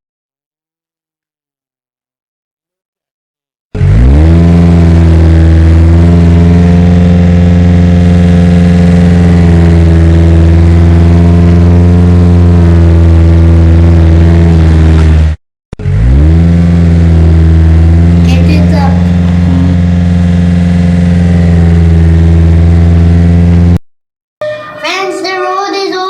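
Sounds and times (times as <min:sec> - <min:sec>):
heavy engine running: 0:03.8 - 0:23.8.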